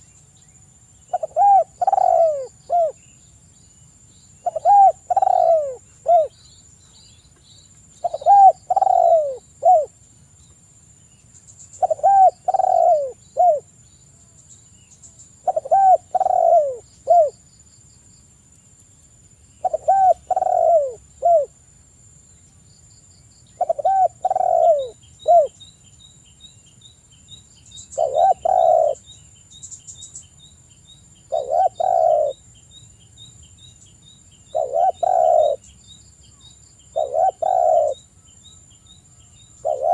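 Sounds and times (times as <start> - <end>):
small birds chirping: 0.0 - 21.6, 22.3 - 39.9
dove cooing: 1.1 - 3.0, 4.4 - 6.4, 8.0 - 9.9, 11.8 - 13.7, 15.4 - 17.4, 19.6 - 21.6, 23.6 - 25.6, 28.0 - 29.0, 31.3 - 32.4, 34.5 - 35.6, 36.9 - 38.1, 39.6 - 39.9.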